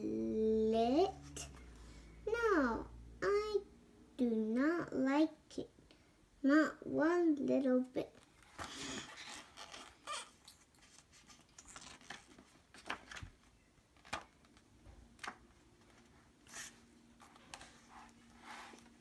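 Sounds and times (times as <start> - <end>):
paper rustling and clicking: 10.8 - 19.0.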